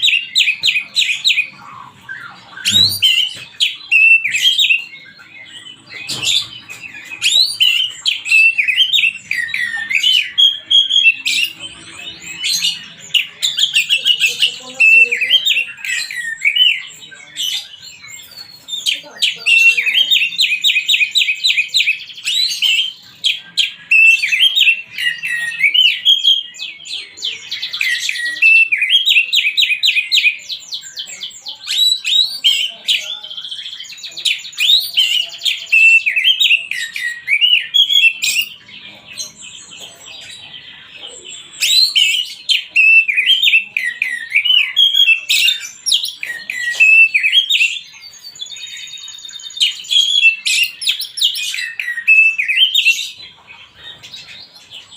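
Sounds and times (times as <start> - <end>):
bird singing whistled phrases: 0.0 - 11.9, 41.6 - 53.2.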